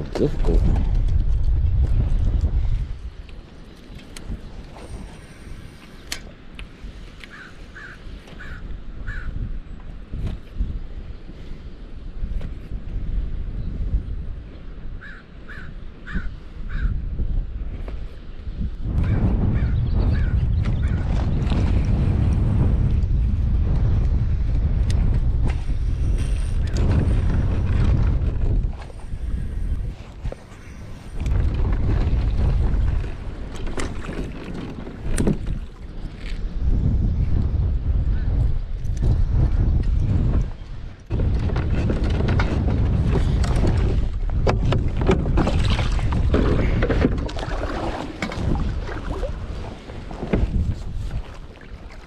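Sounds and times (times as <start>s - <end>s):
wind buffeting microphone: 0.0s - 52.0s
water splashing against kayak hull: 25.0s - 36.6s, 39.8s - 52.0s.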